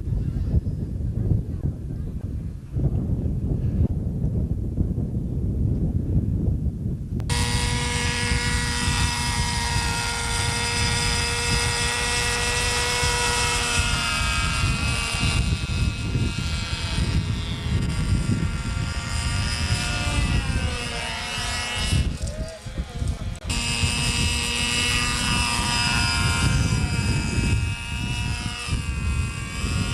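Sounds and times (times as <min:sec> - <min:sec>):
wind rumbling on microphone: 0:00.0 - 0:29.9
model aircraft engine running: 0:07.3 - 0:29.9.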